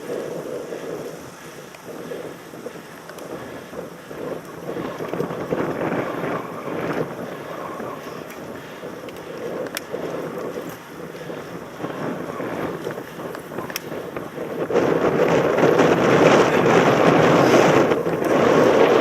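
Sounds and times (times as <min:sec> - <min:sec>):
rushing noise of bike ride: 0:00.0 - 0:19.0
wind buffeting microphone: 0:00.0 - 0:19.0
sharp clicks: 0:12.8 - 0:14.3.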